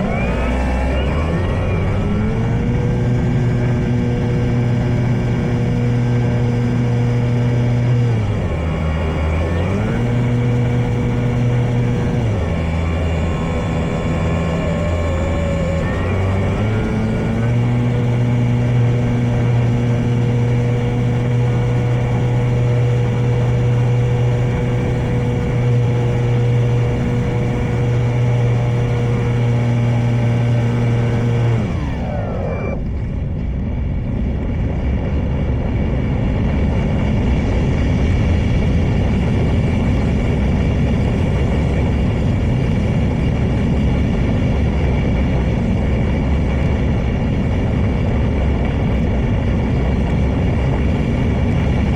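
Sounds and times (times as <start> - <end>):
model plane electric motor and propeller: 0.0 - 51.9
wind rumble on microphone: 0.0 - 51.9.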